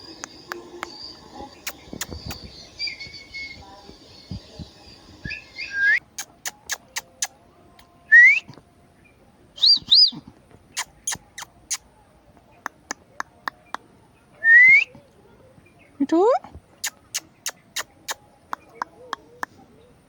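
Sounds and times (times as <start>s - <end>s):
parrot whistling: 5.2s - 6.0s.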